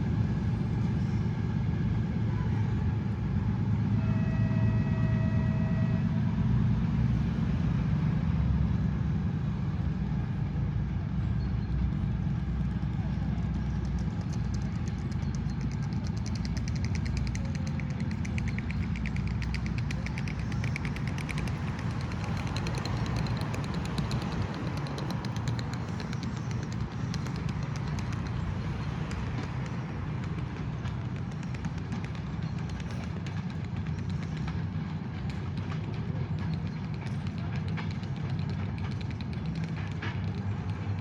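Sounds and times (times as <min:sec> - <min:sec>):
diesel locomotive rumble: 0:00.0 - 0:41.0
fine ticking: 0:13.6 - 0:37.4.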